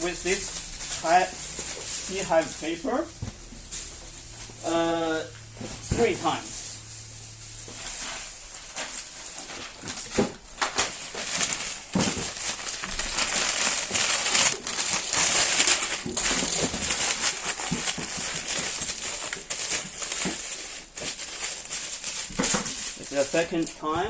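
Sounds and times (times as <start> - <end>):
packing paper rustling: 0.0 - 24.0.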